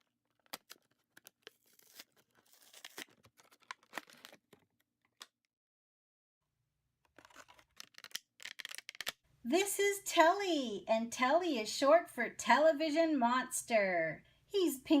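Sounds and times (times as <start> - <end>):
packaging torn and crinkled: 0.0 - 4.8, 7.1 - 9.2.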